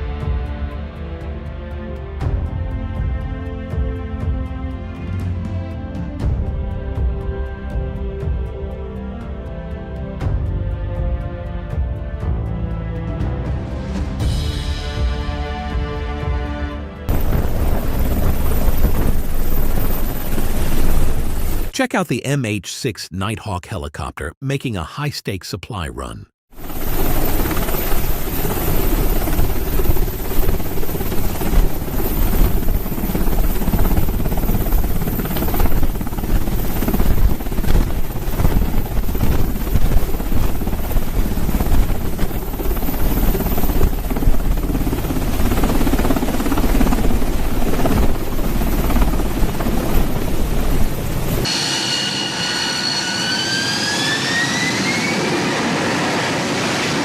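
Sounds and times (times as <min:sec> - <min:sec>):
helicopter rotor and engine: 0:17.1 - 0:21.7, 0:26.6 - 0:57.0
rushing noise with rising whine: 0:51.4 - 0:56.9.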